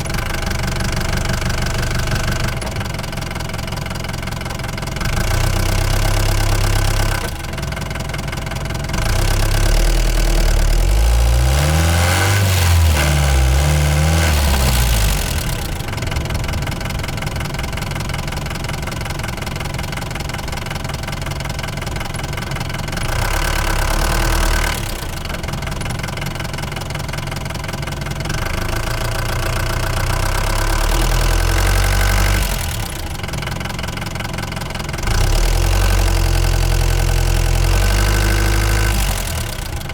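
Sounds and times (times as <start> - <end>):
van engine revving: 8.9 - 19.5, 35.0 - 39.9.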